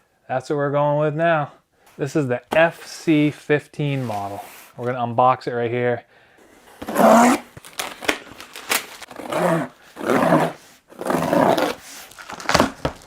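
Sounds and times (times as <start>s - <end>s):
cardboard and tape ripping: 6.6s - 13.0s.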